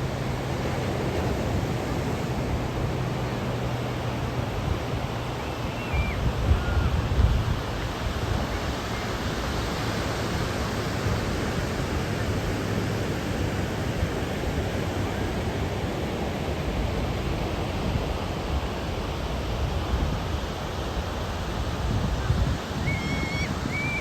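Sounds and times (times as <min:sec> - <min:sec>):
wind buffeting microphone: 0:00.0 - 0:09.4, 0:21.1 - 0:24.0
surf roaring: 0:00.0 - 0:24.0.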